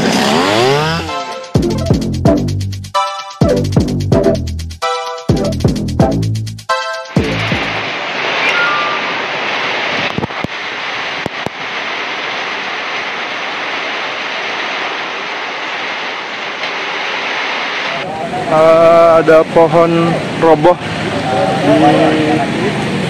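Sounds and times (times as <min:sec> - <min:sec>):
wind: 0:00.0 - 0:01.5, 0:06.7 - 0:23.0
rain: 0:07.2 - 0:23.0.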